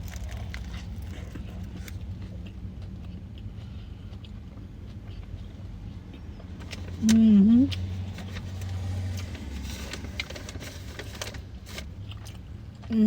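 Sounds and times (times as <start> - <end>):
chewing mouth clicks and smacks: 0.0 - 7.9
steady low hum: 0.0 - 13.0.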